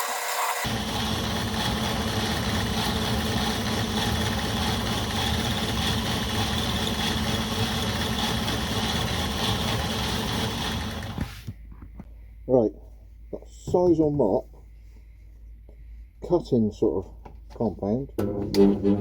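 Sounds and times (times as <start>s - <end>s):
grinder motor humming: 0.0s - 11.5s.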